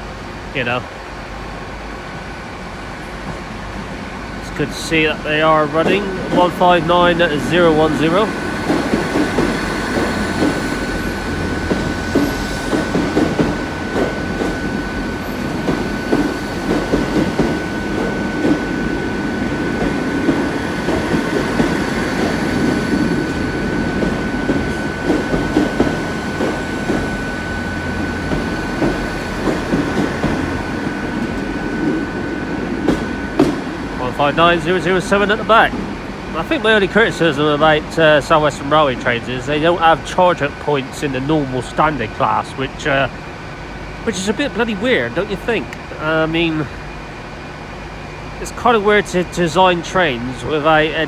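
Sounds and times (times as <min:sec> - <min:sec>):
train wheels clattering over rails: 0:02.9 - 0:43.4.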